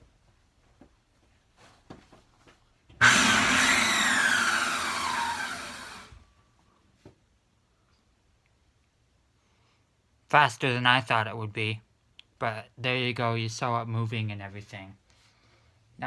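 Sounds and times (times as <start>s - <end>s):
vacuum cleaner motor whine: 3.0s - 6.2s.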